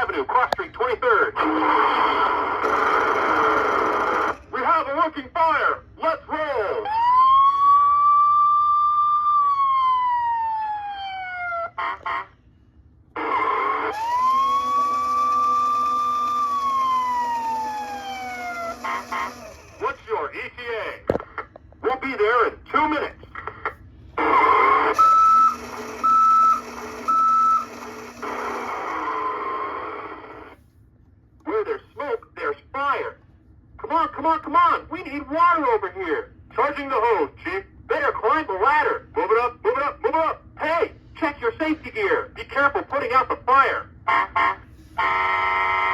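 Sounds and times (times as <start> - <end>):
electronic toy siren wailing: 6.8 - 12.3, 13.2 - 20.0, 24.2 - 30.6, 44.1 - 45.9
short siren blasts: 6.8 - 12.4, 13.2 - 20.0, 24.2 - 30.4, 44.1 - 45.9
rushing engine-like noise: 13.2 - 20.1, 24.2 - 30.6
reversing beeps: 25.0 - 27.8.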